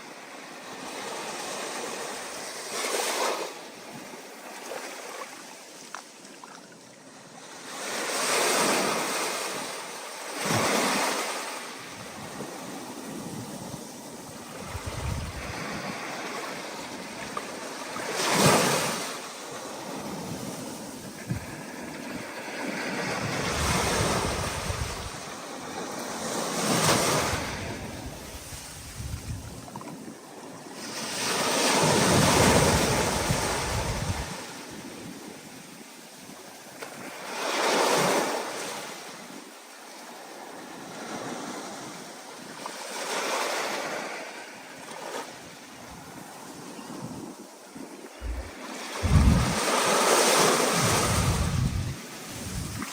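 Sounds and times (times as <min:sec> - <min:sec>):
stormy surf breaking: 0:14.6 - 0:15.8, 0:48.2 - 0:52.9.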